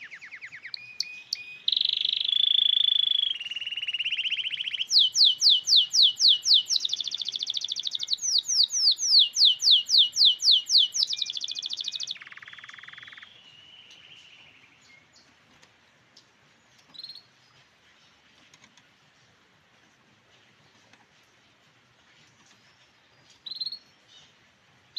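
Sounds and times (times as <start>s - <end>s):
canary singing: 0.0s - 15.3s, 16.9s - 17.3s, 23.2s - 24.3s.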